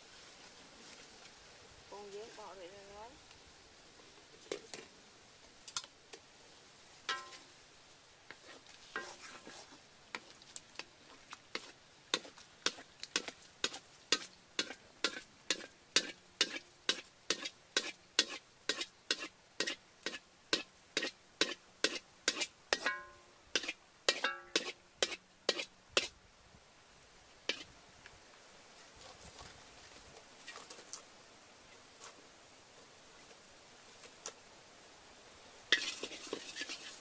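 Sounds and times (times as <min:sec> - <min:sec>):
spatula scraping in a steel wok: 0:07.1 - 0:07.4, 0:08.3 - 0:10.3, 0:11.5 - 0:26.2, 0:27.5 - 0:27.7, 0:35.7 - 0:37.0.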